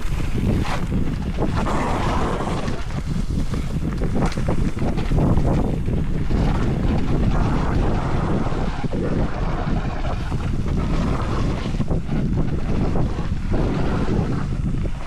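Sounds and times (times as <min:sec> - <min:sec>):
bike knocking over rough ground: 0:00.0 - 0:07.2
wind buffeting microphone: 0:00.0 - 0:15.0.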